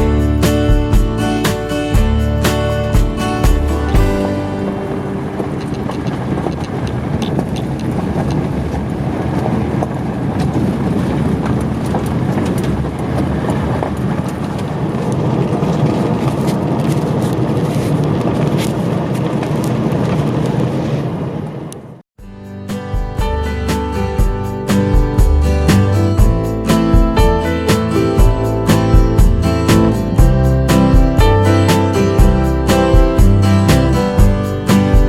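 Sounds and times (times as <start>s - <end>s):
tyre and road rumble: 0.0s - 22.0s.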